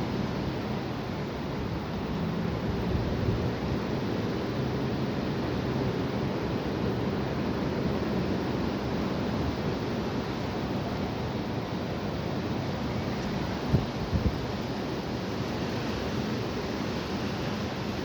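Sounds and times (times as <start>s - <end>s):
high wind blowing: 0.0s - 18.0s
wind rumbling on microphone: 0.0s - 18.0s.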